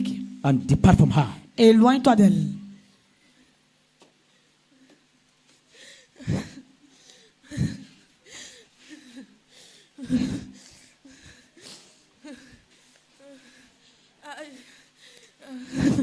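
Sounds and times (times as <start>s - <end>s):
person breathing hard: 5.7s - 16.0s.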